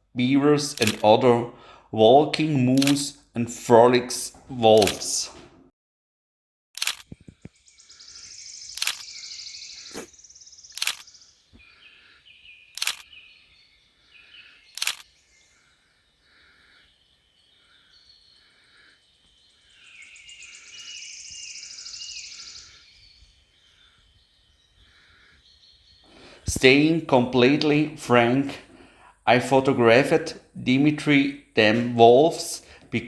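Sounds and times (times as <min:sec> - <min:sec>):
camera shutter firing: 0:00.8 - 0:01.0, 0:02.8 - 0:03.0, 0:08.8 - 0:09.0, 0:10.8 - 0:11.0, 0:12.8 - 0:13.0, 0:14.8 - 0:15.0
soft repeated bird calls: 0:07.1 - 0:27.0
buzzy high bird trill: 0:07.6 - 0:11.5, 0:19.3 - 0:24.8.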